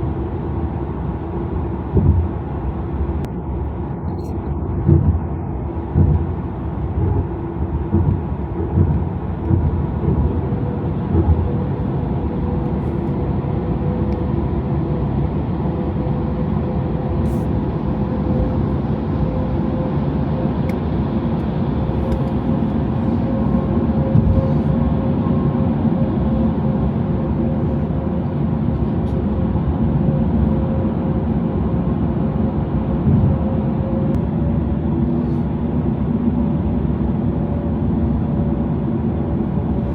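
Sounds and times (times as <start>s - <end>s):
low thumps: 1.8s - 3.3s, 4.8s - 11.9s.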